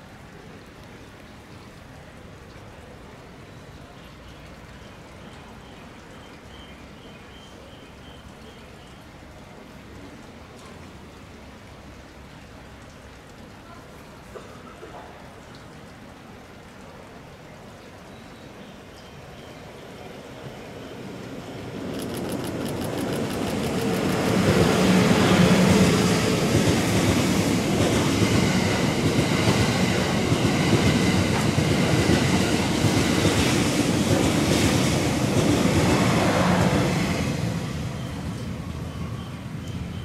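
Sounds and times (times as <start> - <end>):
train rumble: 20.0 - 40.0
train wheels clattering: 21.8 - 36.7.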